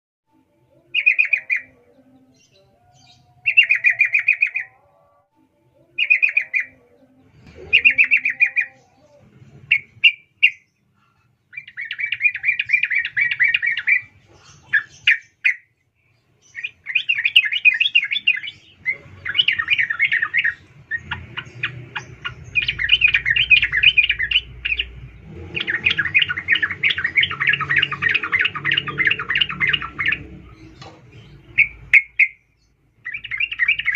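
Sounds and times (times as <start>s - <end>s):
bird chattering: 7.6s - 10.7s, 16.6s - 32.4s, 33.0s - 33.9s.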